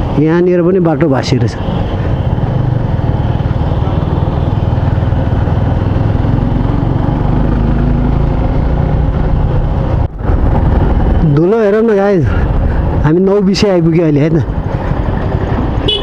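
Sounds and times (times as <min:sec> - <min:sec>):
road and wind noise: 0:00.0 - 0:16.0
motorcycle engine running: 0:01.7 - 0:11.4, 0:13.7 - 0:16.0.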